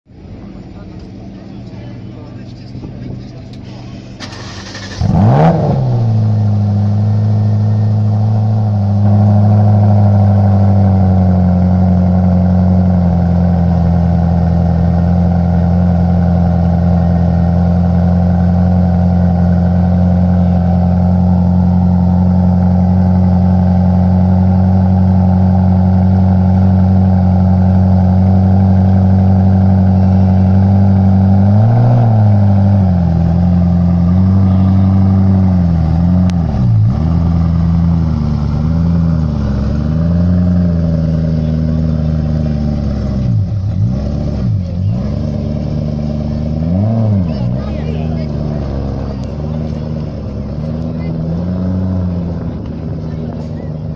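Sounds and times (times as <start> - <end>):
sports car engine starting and idling: 0.1 - 53.9
engine revving: 3.5 - 53.9.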